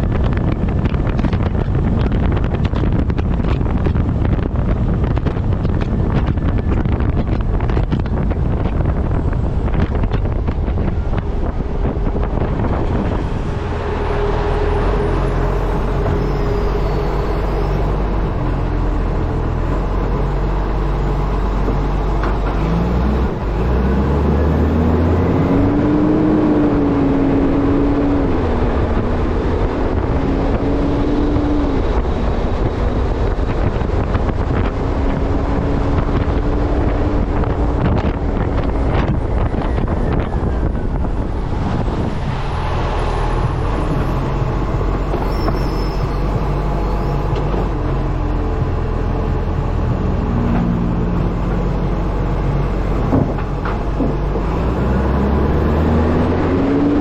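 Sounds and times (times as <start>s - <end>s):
truck engine hum: 0.0s - 57.0s
wind rushing over microphone: 0.0s - 57.0s
rising wavering tone: 12.4s - 19.4s.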